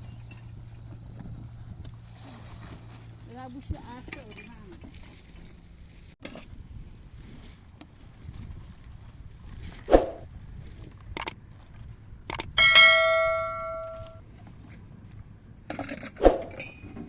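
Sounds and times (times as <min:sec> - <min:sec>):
metallic strike ringing: 0:12.6 - 0:14.2.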